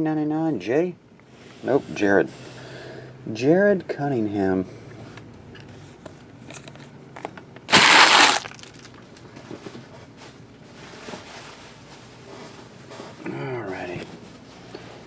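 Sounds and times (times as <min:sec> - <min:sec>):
wrapper crinkling: 0:07.7 - 0:09.2.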